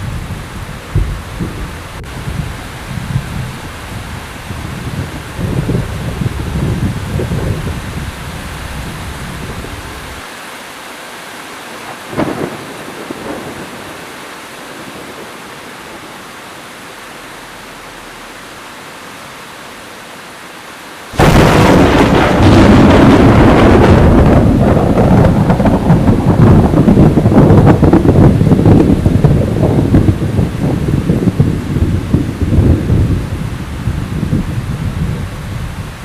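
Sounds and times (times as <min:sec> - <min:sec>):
low thunder rumble: 0:00.0 - 0:10.2, 0:12.0 - 0:16.2, 0:21.2 - 0:36.0
steady rain hiss: 0:00.0 - 0:36.0
thunder crack: 0:00.9 - 0:02.4, 0:04.9 - 0:10.2, 0:12.1 - 0:14.0, 0:21.2 - 0:33.2.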